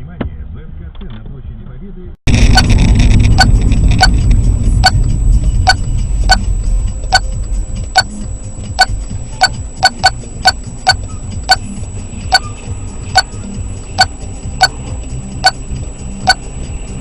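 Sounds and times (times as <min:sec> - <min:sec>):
engine and road rumble: 0:00.0 - 0:17.0
turn signal ticking: 0:02.3 - 0:12.6, 0:13.2 - 0:15.6, 0:16.3 - 0:16.5.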